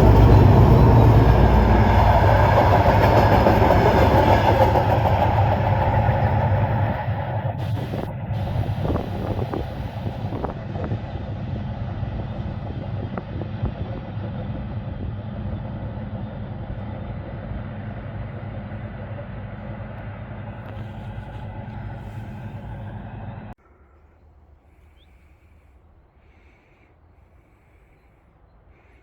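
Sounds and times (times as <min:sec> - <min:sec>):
train rumbling on the line: 0:00.0 - 0:23.8.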